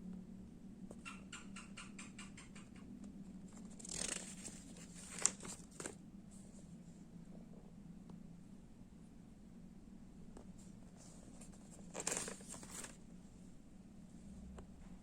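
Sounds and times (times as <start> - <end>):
low steady hum: 0.0 - 15.0
brief rustle: 11.0 - 13.0.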